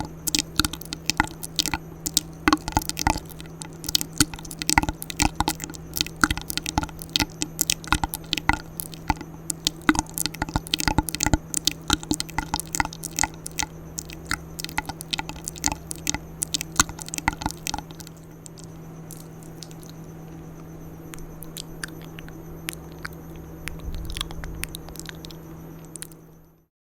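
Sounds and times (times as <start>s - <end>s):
wet mouth clicks and smacks: 0.0s - 26.3s
steady low hum: 0.0s - 26.7s.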